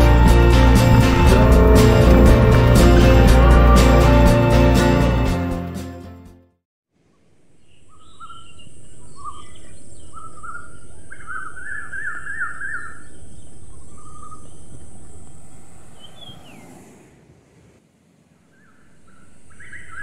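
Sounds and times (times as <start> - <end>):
outdoor background hiss: 6.9 - 11.2, 12.8 - 20.0
birds singing: 7.6 - 16.8, 18.5 - 20.0.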